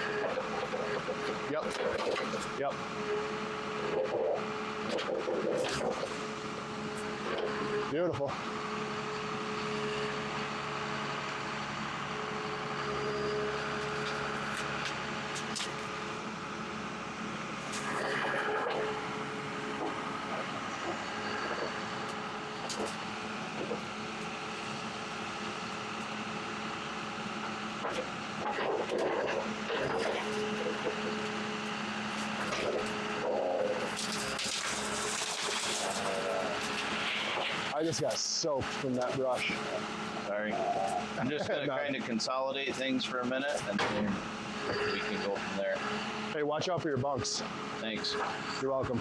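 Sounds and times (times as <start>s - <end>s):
engine running under hydraulic load: 0.0s - 49.0s
branches crackling and snapping: 33.8s - 37.5s.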